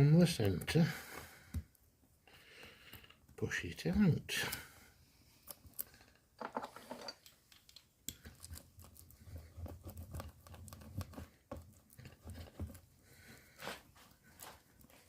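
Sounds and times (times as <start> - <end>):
scrape: 12.0 - 15.0
patch rubbed onto rubber tube: 13.5 - 15.0.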